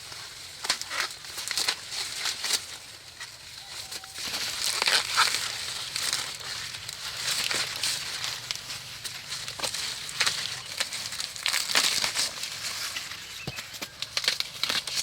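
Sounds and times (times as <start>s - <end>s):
leaves and twigs rustling: 0.0s - 15.0s
twigs snapping: 3.9s - 15.0s.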